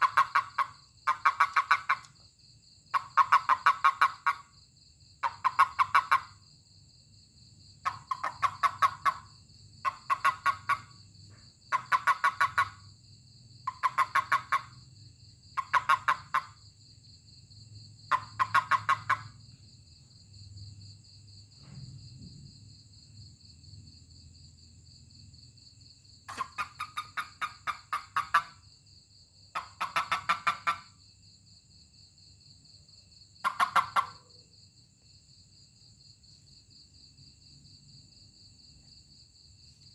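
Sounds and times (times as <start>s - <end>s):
toad chirping pulses: 0.0s - 2.2s, 2.9s - 4.6s, 5.2s - 6.4s, 7.8s - 12.9s, 13.6s - 14.9s, 15.5s - 16.6s, 18.0s - 19.6s, 26.2s - 28.6s, 29.5s - 31.0s, 33.4s - 34.4s
high insect trill: 0.0s - 39.9s.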